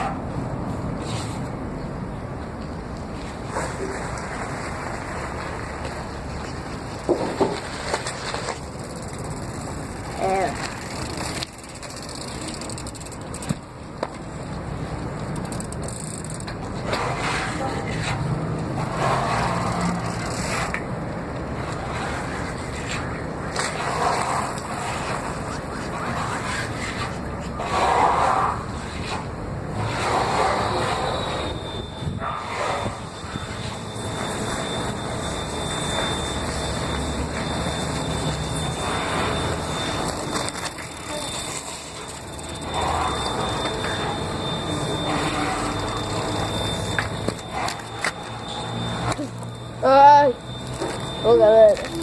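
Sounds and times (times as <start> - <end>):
bicycle rattling while ridden: 3.1 - 52.0
sharp bicycle clicks: 7.8 - 14.2, 15.2 - 16.6
wind rumble on microphone: 31.7 - 33.3.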